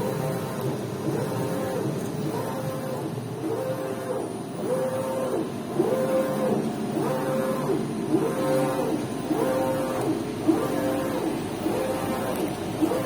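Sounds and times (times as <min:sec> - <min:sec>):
printer carriage motor whine: 0:00.0 - 0:13.0.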